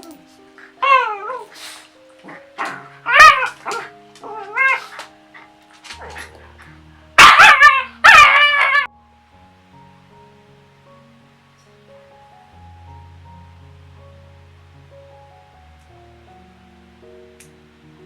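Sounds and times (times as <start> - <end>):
soft background music: 0.0 - 18.0
dog barking and yipping: 0.1 - 6.6, 7.2 - 8.9.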